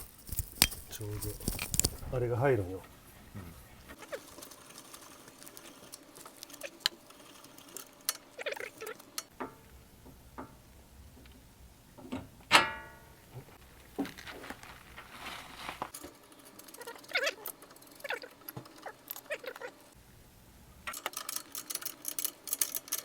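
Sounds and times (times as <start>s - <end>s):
metal tools clinking: 0.0s - 2.1s.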